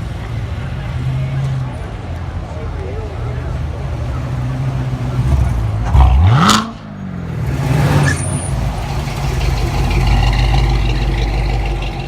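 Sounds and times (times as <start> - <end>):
car engine revving: 4.3 - 12.0.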